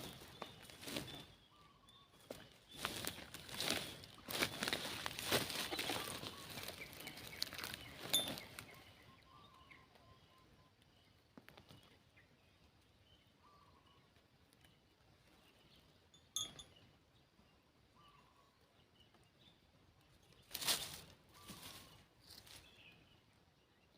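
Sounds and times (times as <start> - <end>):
faint bird calls: 0.0 - 12.0, 13.4 - 14.2, 17.9 - 18.8, 21.3 - 22.9.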